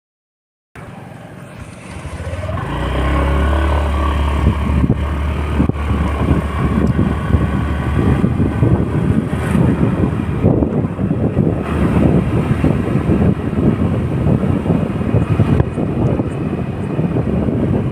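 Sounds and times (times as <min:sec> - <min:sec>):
vehicle engine accelerating: 0:00.8 - 0:17.9
wind buffeting microphone: 0:01.3 - 0:17.9.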